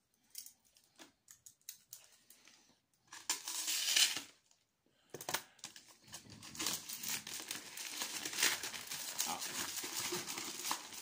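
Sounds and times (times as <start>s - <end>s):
packing material crinkling and tearing: 5.4s - 11.0s.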